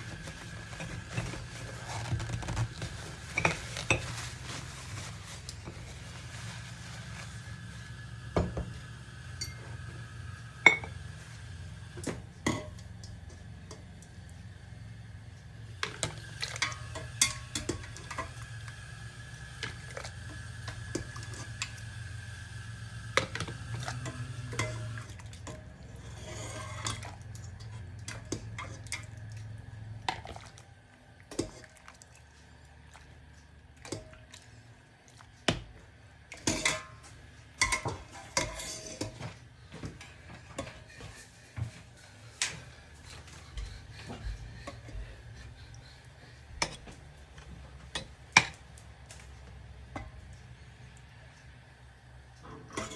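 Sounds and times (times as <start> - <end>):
utensils and dishes clinking: 0.0 - 4.6, 9.4 - 9.8, 10.6 - 11.0, 12.1 - 13.9, 23.2 - 30.5, 36.3 - 39.4, 52.4 - 52.9
steady low hum: 0.0 - 52.9.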